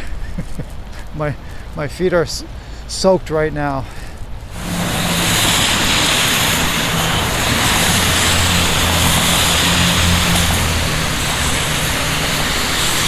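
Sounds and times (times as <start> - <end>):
tyre hiss on wet ground: 3.9 - 13.0
wind rushing over microphone: 4.1 - 13.0.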